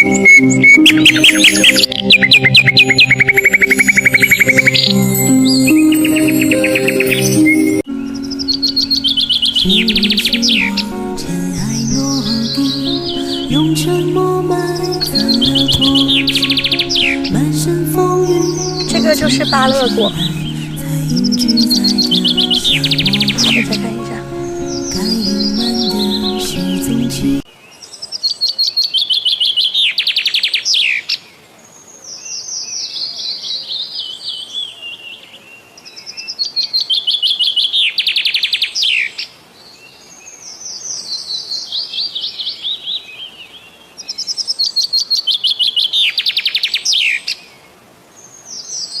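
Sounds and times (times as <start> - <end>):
music: 0.0 - 27.4
songbird singing with trill: 0.0 - 31.0, 32.1 - 47.4.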